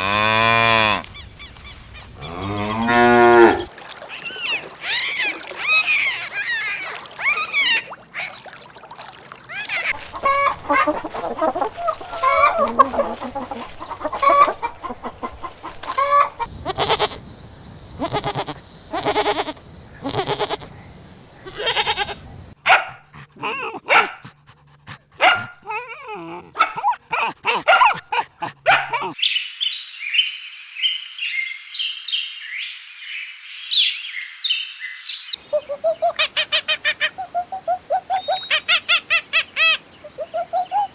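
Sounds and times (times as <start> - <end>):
high chirping calls: 4.2 - 8.7, 16.4 - 22.6, 35.3 - 40.9
chickens clucking: 9.6 - 17.3, 35.4 - 40.9
dog barking: 22.6 - 24.3, 25.2 - 25.8, 26.6 - 29.2.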